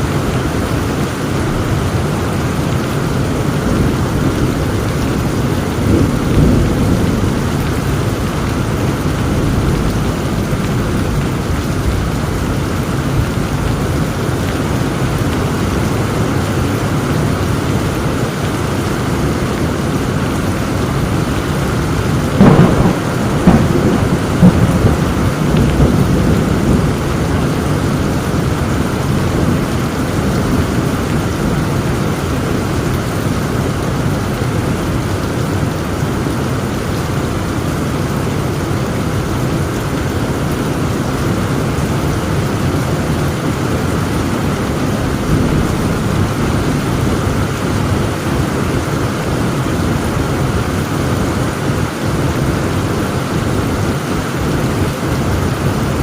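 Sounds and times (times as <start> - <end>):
heavy rain: 0.0 - 56.0
thunder crack and rumble: 1.6 - 15.8, 20.9 - 34.0, 40.8 - 51.9.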